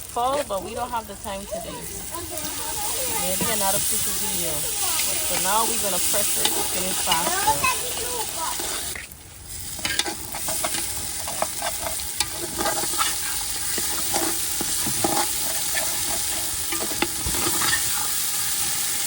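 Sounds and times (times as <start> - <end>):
curry sizzling in a pot: 0.0 - 19.0
spoon scraping and knocking pot: 5.3 - 7.6, 9.8 - 18.1.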